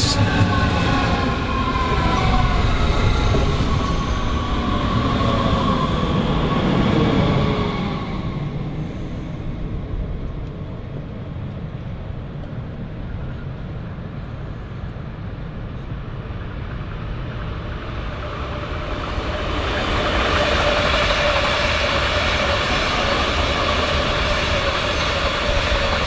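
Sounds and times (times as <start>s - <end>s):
train rolling noise: 0.0s - 26.0s.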